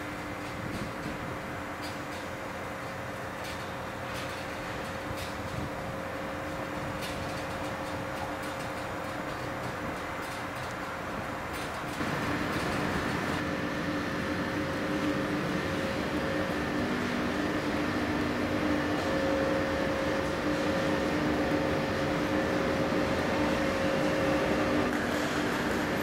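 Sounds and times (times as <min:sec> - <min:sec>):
electrical hum of held tones: 0:00.0 - 0:26.0
train cars rolling past: 0:00.0 - 0:26.0.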